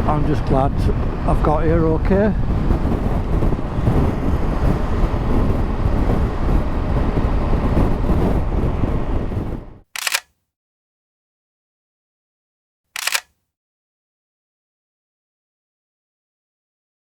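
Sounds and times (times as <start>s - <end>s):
wind rushing past microphone: 0.0s - 9.8s
short click: 10.0s - 10.3s, 13.0s - 13.4s.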